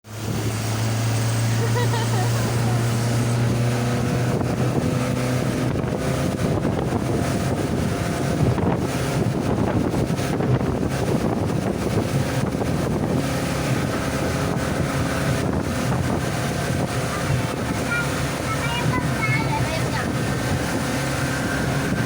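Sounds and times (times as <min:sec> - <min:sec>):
motorboat engine running: 0:00.0 - 0:22.0
water rushing past: 0:00.0 - 0:22.0
wind buffeting microphone: 0:00.1 - 0:22.0.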